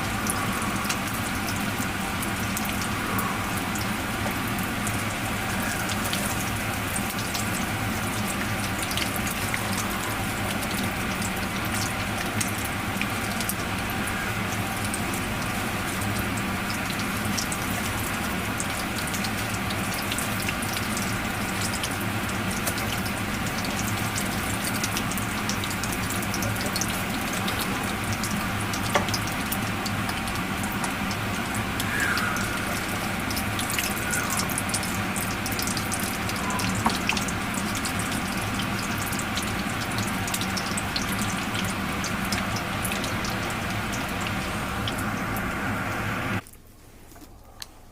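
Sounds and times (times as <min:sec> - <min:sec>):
food frying in hot oil: 0:00.0 - 0:46.4.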